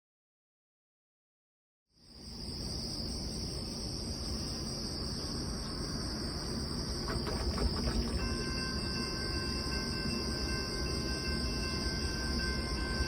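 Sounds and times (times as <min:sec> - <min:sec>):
high-pitched insect chorus: 0:02.0 - 0:13.0
low outdoor rumble: 0:06.1 - 0:11.4.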